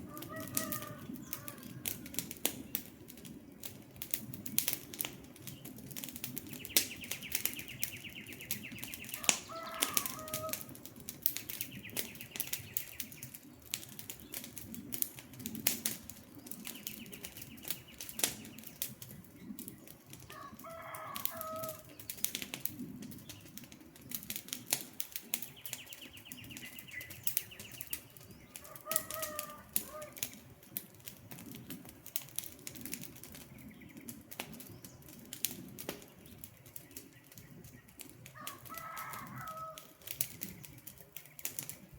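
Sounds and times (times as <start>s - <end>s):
campfire crackling and popping: 0.0s - 41.9s
low rumble of flames: 0.0s - 41.9s.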